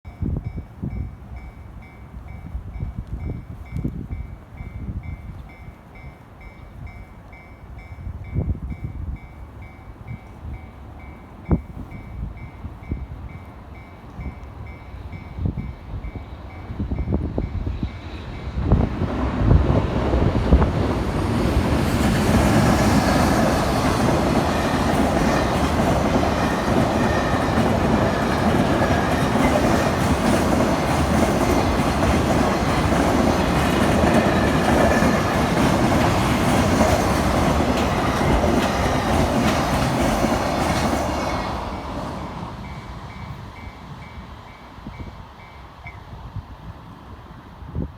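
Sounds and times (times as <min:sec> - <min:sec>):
train wheels clattering over rails: 0:18.4 - 0:42.7.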